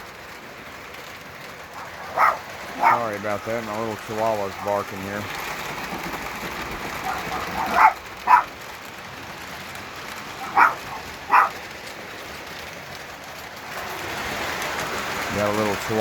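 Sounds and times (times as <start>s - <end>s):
toy electric train running on track: 0.0s - 16.0s
small dog barking: 1.8s - 3.1s, 7.0s - 8.5s, 10.4s - 11.6s.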